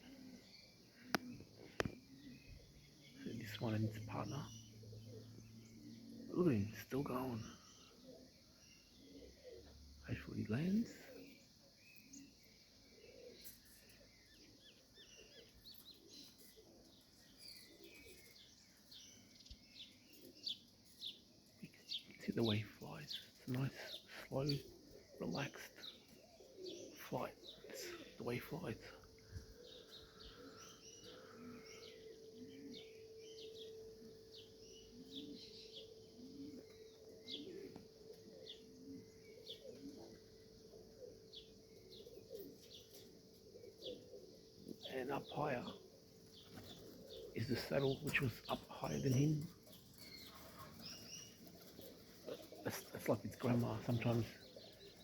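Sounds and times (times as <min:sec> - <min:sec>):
faint steady hum: 0:00.0 - 0:47.8
pigeons cooing: 0:00.0 - 0:55.0
small birds chirping: 0:00.0 - 0:55.0.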